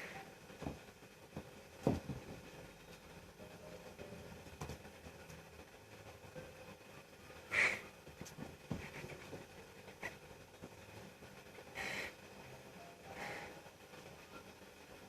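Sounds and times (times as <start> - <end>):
cats hissing: 7.4 - 8.0, 11.7 - 12.2.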